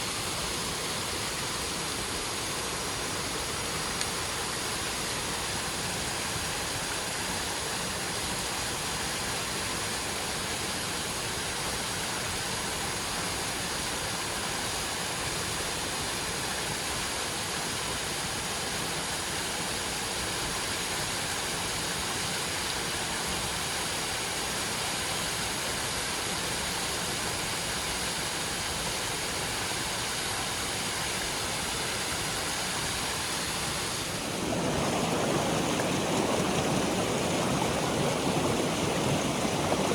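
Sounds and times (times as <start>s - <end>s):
heavy rain falling: 33.1s - 39.9s.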